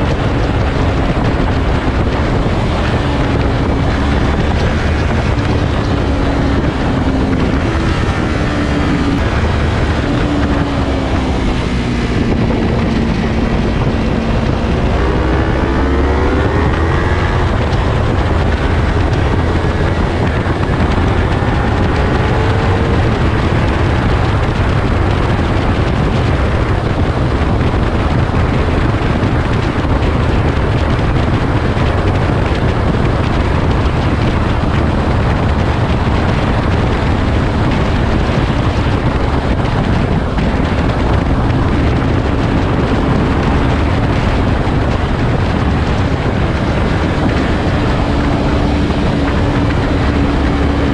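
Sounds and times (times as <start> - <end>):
motorcycle engine accelerating: 0.0 - 50.9
wind rush on microphone: 0.0 - 50.9.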